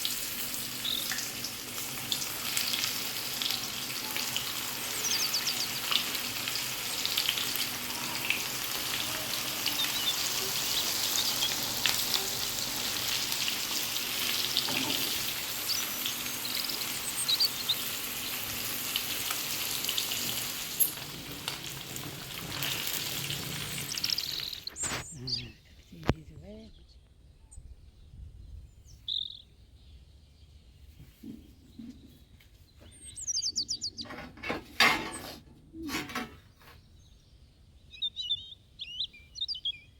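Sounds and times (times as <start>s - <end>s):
food sizzling in hot oil: 0.0s - 24.8s.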